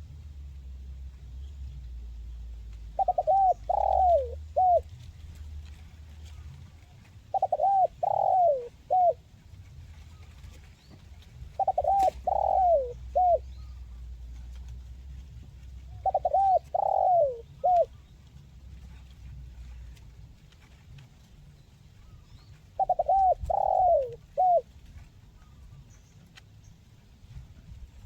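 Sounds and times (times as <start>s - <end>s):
steady low hum: 0.0s - 28.0s
dove cooing: 2.7s - 5.5s, 6.2s - 20.0s, 22.1s - 25.7s.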